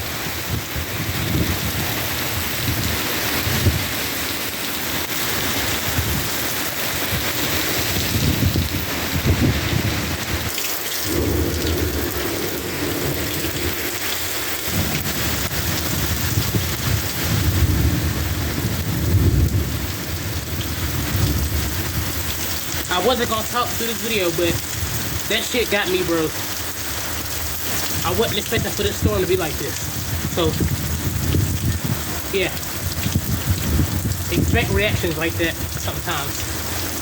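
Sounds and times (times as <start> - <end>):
gusting wind: 0.0 - 37.0
heavy rain pouring: 0.0 - 37.0
low rumbling: 11.1 - 22.2.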